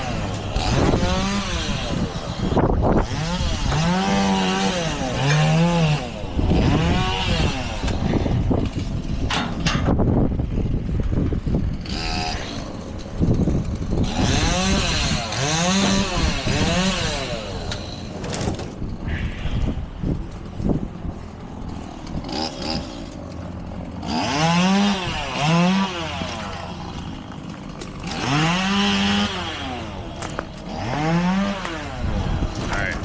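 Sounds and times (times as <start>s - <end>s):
chainsaw revving and idling: 0.0s - 2.4s, 3.0s - 8.1s, 11.8s - 18.1s, 21.8s - 32.7s.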